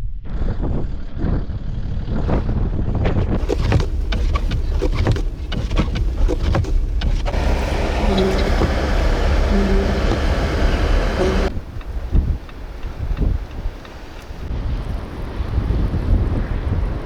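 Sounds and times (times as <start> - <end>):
crackles and knocks: 3.4 - 14.5
wind buffeting microphone: 3.4 - 17.0.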